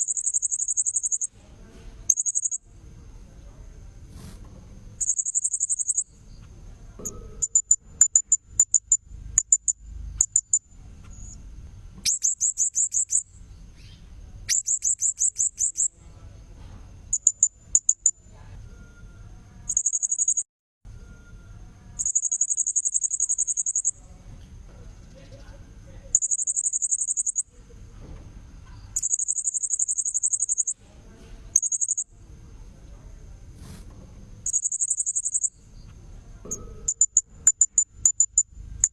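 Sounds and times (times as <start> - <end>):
high-pitched parrot trills: 0.0 - 1.3, 5.0 - 6.1, 22.0 - 23.9, 26.2 - 27.4, 34.5 - 35.5
quick ticking chirps: 0.0 - 1.3, 2.1 - 2.6, 5.0 - 6.1, 7.4 - 11.4, 12.0 - 13.9, 14.5 - 15.9, 17.1 - 18.1, 19.7 - 20.4, 22.0 - 24.0, 26.1 - 27.4, 29.0 - 30.8, 31.6 - 32.0, 34.4 - 35.6, 36.9 - 38.9
thin steady high tone: 0.0 - 1.3, 2.1 - 2.8, 5.0 - 6.2, 17.2 - 24.1, 25.3 - 27.6, 28.9 - 30.8, 31.6 - 32.1, 34.5 - 35.6.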